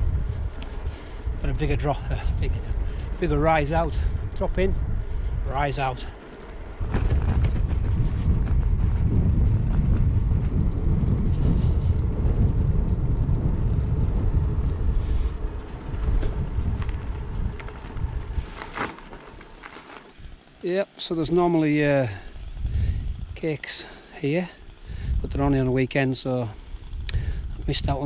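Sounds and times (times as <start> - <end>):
wind buffeting microphone: 0.0 - 20.5, 21.4 - 23.6, 24.6 - 28.0
bike rattle clicks: 14.7 - 20.3.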